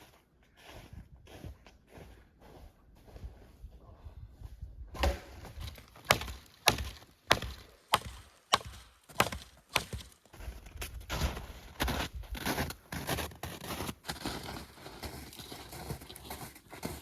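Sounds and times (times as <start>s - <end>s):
hatchet chopping firewood: 5.0s - 10.4s.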